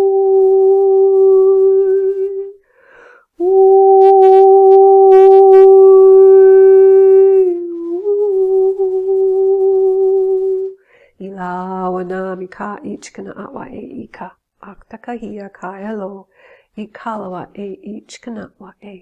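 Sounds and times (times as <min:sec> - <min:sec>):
woman toning held notes: 0:00.0 - 0:02.6
woman breathing: 0:02.6 - 0:03.4, 0:10.8 - 0:11.2, 0:16.3 - 0:16.8.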